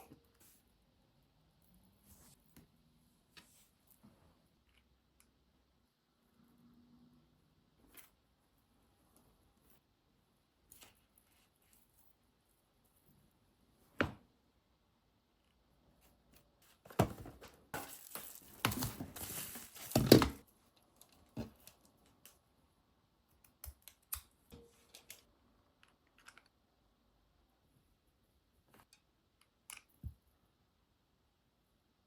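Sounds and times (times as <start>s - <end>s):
crinkling and rustling: 16.0s - 22.4s.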